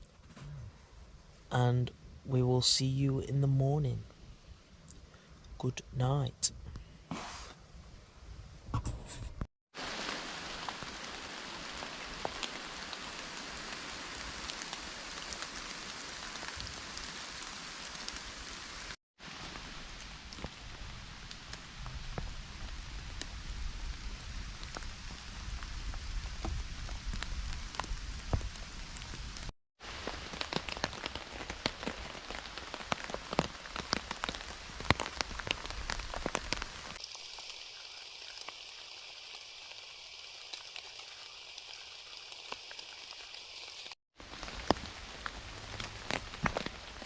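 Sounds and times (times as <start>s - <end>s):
rain falling on a tent: 9.7s - 47.0s.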